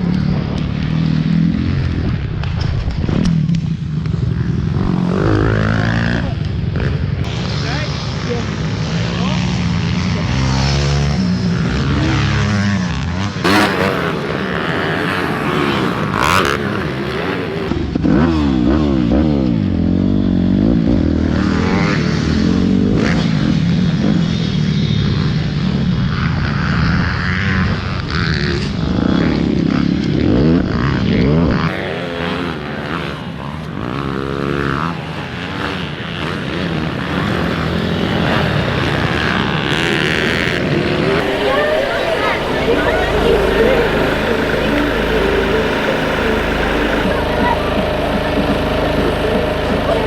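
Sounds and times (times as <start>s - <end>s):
pit bike engines revving: 0.0s - 50.0s.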